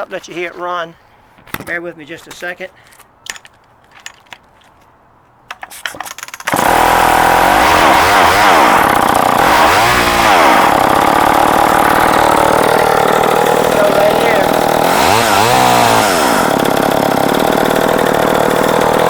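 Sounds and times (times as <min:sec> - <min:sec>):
chainsaw engine revving: 0:06.5 - 0:19.0.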